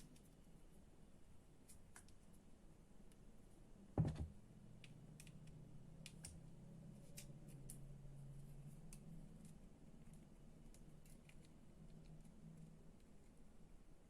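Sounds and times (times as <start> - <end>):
faint clicks of small parts: 0.0 - 0.8, 1.6 - 3.3, 4.8 - 13.5.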